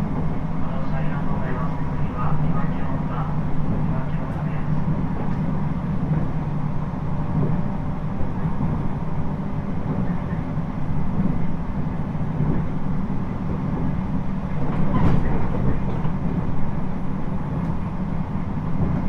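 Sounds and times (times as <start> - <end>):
train interior running rumble: 0.0 - 19.0.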